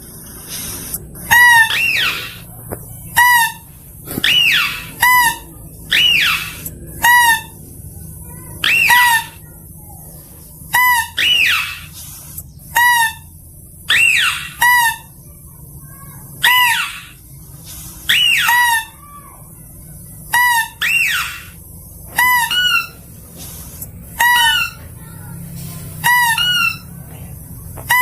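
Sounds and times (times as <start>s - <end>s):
steady hiss: 0.0s - 5.0s, 9.4s - 14.0s, 15.2s - 18.3s, 22.9s - 26.1s
mouse-deer squealing calls: 0.1s - 7.6s, 8.4s - 9.6s, 10.7s - 13.3s, 13.9s - 15.2s, 16.4s - 19.4s, 20.3s - 25.2s, 26.0s - 27.0s.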